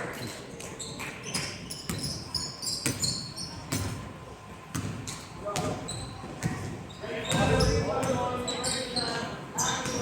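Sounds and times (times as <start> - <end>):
basketball bouncing on gym floor: 0.2 - 4.1, 4.7 - 8.4
sneakers squeaking on hardwood: 0.2 - 10.0.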